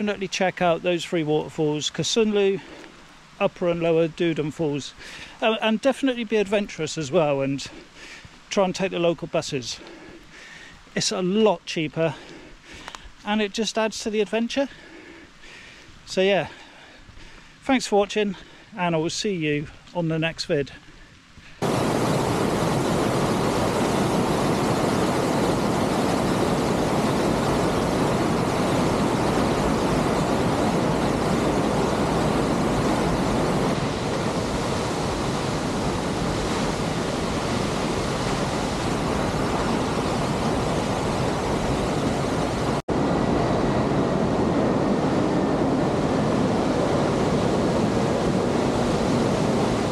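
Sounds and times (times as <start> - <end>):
waterfall rushing: 21.6 - 49.9.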